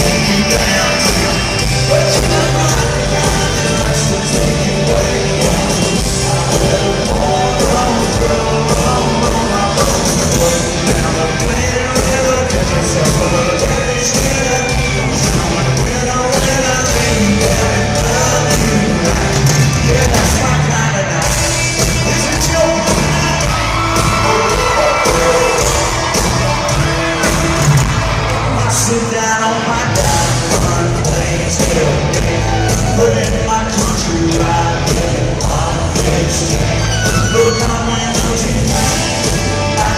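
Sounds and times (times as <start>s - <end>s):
steady drum beat: 0.0s - 28.9s, 29.9s - 39.9s
country rock band playing: 0.0s - 39.9s
lead singer singing: 0.0s - 39.9s.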